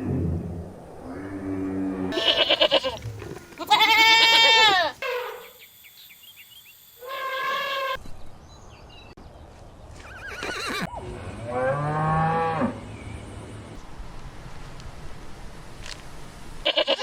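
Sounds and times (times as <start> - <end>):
goats bleating: 2.1 - 5.2, 16.6 - 17.0.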